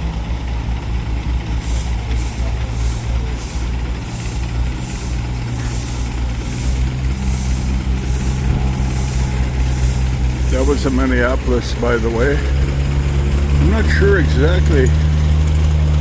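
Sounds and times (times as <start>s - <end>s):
steady low hum: 0.0s - 16.0s
steam engine exhaust chuffs: 0.0s - 16.0s.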